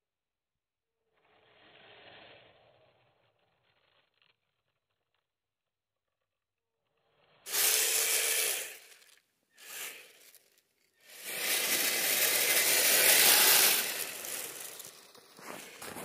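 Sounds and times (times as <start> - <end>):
tracks scraping on icy snow: 11.1 - 16.0.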